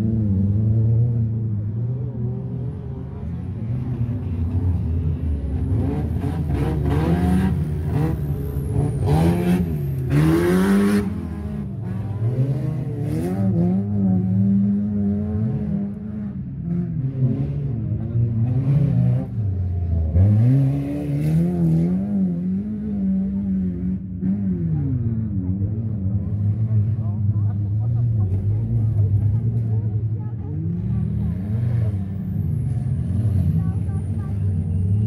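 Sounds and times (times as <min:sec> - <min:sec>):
race car engines revving: 0:00.0 - 0:35.0.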